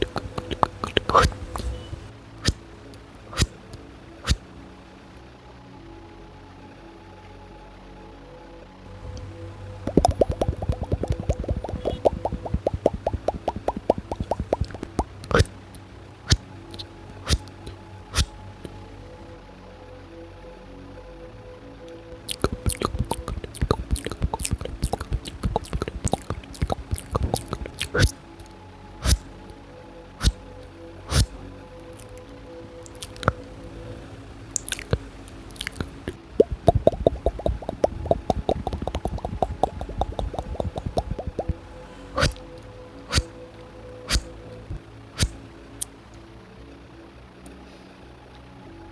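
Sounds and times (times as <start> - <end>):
sharp mouth clicks: 0.0 - 1.7, 9.8 - 15.5, 22.3 - 28.1, 32.9 - 33.4, 34.6 - 35.0, 35.6 - 41.6, 42.2 - 42.4
wet mouth popping plops: 0.0 - 1.7, 9.9 - 15.5, 22.3 - 28.1, 34.6 - 35.0, 35.6 - 41.6.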